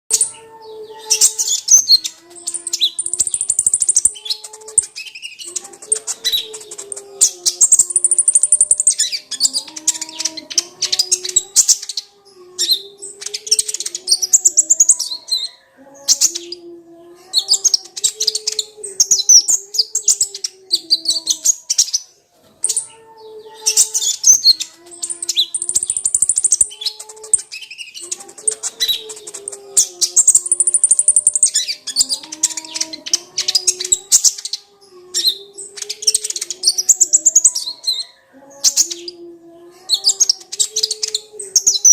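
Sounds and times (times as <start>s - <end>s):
bird twittering and trilling: 0.1s - 41.9s.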